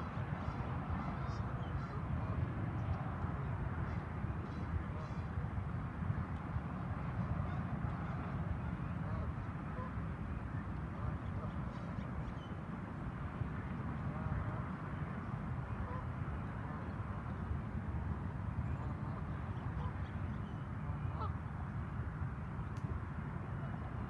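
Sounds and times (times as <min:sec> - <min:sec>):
waterfowl calling faintly: 0:21.1 - 0:21.4.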